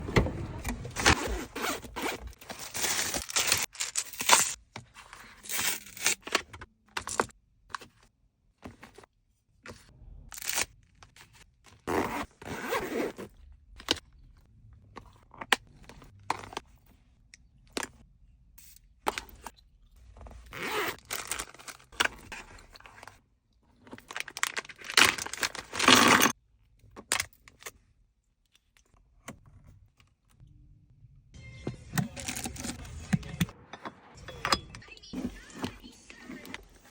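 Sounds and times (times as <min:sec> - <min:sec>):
packaging crinkling and clicking: 0:24.0 - 0:26.3.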